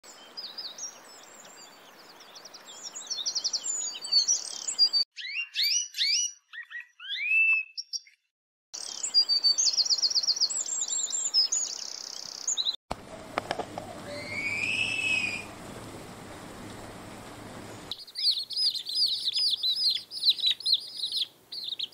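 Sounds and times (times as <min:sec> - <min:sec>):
songbirds chirping and trilling: 0:00.1 - 0:21.9
rising and falling bird call: 0:03.3 - 0:08.1, 0:13.4 - 0:21.9
low hum: 0:12.9 - 0:17.9.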